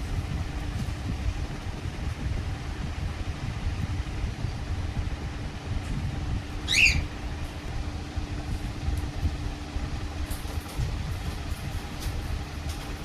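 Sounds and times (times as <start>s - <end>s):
parrot squawk: 6.6s - 7.1s.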